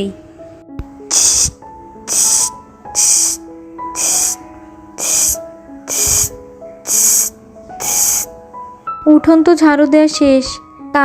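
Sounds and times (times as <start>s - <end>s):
soft background music: 0.0s - 11.0s
broom sweeping the ground: 1.1s - 3.4s, 4.0s - 4.4s, 5.0s - 6.3s, 6.9s - 8.3s.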